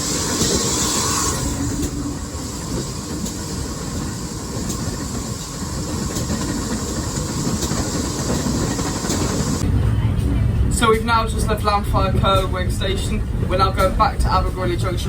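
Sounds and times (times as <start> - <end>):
train carriages rumbling: 0.0 - 15.0
wheels clicking over rails: 1.5 - 9.6.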